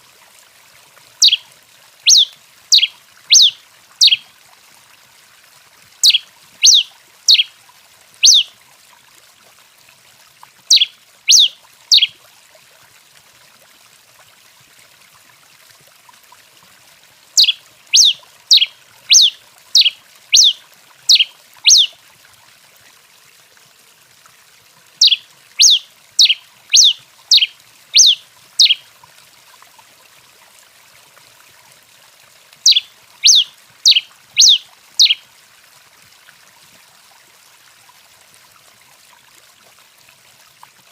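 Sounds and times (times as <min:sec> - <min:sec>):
faint steady hiss: 0:00.0 - 0:40.9
finch singing: 0:01.2 - 0:01.4, 0:02.1 - 0:04.2, 0:06.0 - 0:07.5, 0:08.2 - 0:08.5, 0:10.7 - 0:12.1, 0:17.4 - 0:21.9, 0:25.0 - 0:28.8, 0:32.6 - 0:35.2.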